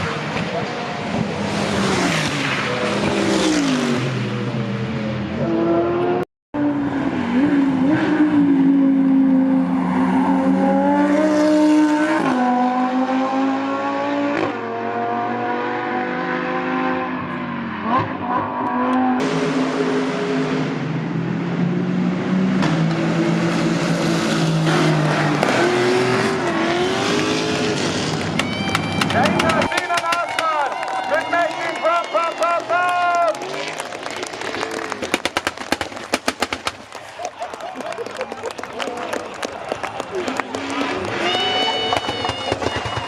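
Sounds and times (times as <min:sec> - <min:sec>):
race car engines revving: 0:00.0 - 0:43.0.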